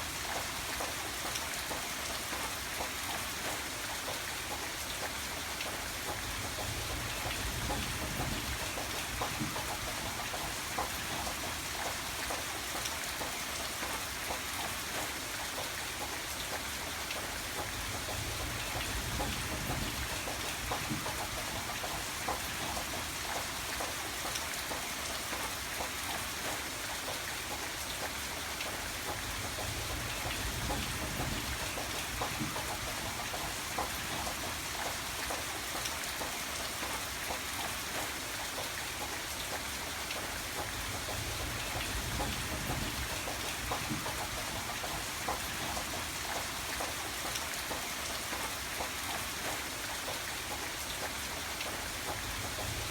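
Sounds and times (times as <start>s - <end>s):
rain drops pattering on surface: 0.0s - 52.9s.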